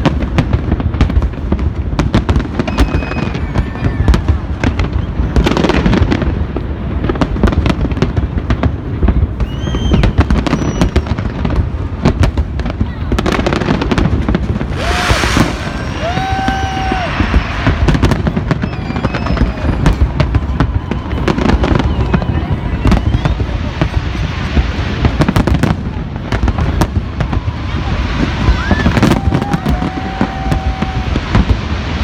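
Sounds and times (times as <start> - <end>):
fireworks bangs and crackles: 0.0 - 32.0
fireworks hissing burst: 13.3 - 32.0.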